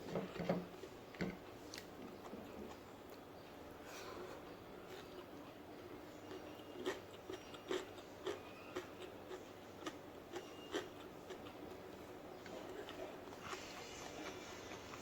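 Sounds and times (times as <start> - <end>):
chewing crunchy food: 4.4 - 15.0.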